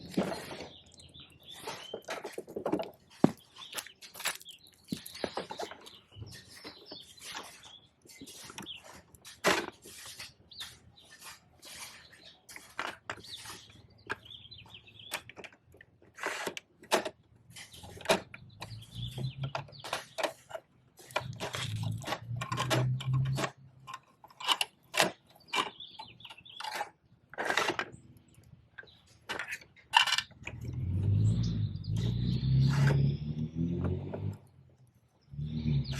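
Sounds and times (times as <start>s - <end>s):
plastic toy truck clicks and knocks: 15.0s - 30.7s.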